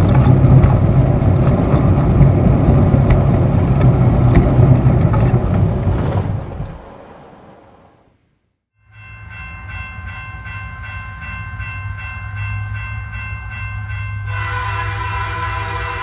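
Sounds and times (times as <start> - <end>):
train running rhythmically: 0.0 - 6.6, 9.2 - 16.0
train horn blast: 14.3 - 16.0.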